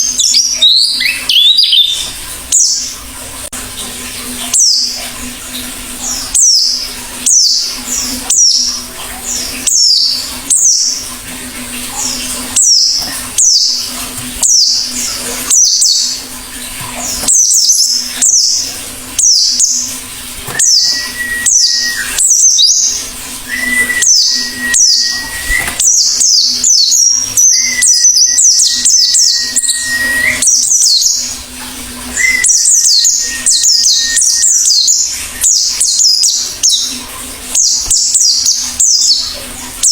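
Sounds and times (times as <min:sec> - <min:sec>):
bird chirps dropping in pitch: 0:00.0 - 0:02.8, 0:20.6 - 0:31.2
long level whistled notes: 0:20.6 - 0:22.8, 0:23.5 - 0:26.6, 0:27.4 - 0:30.6.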